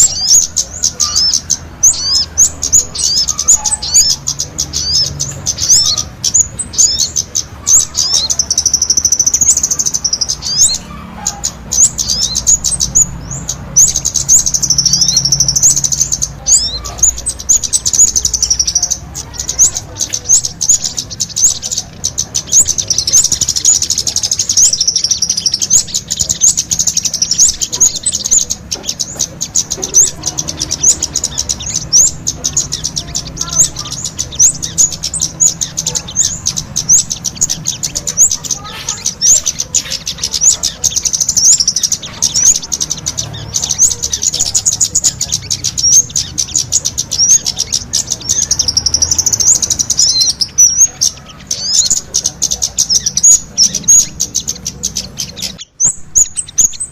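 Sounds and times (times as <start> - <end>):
songbirds chirping and trilling: 0.0 - 56.9.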